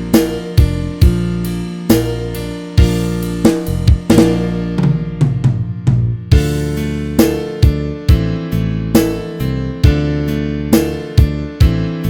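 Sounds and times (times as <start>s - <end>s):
heavy drum kit hits: 0.0s - 8.4s
held bass and keyboard chords: 0.0s - 12.0s.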